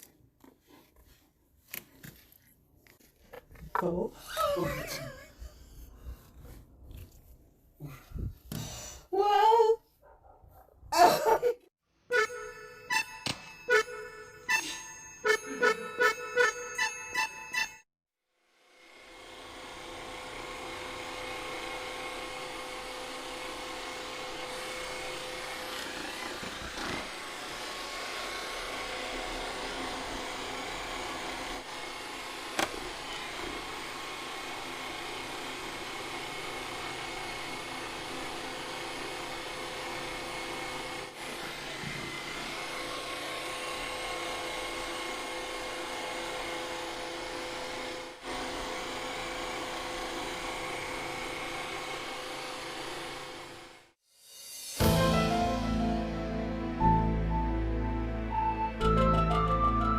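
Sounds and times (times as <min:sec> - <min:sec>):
small electric motor whining: 0:18.8 - 0:53.8.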